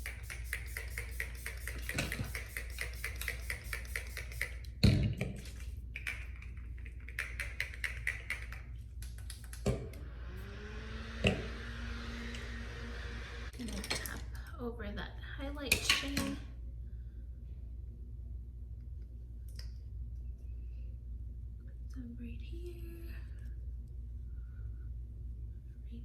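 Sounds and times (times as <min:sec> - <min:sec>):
spray bottle pumping mist: 0:00.0 - 0:04.8.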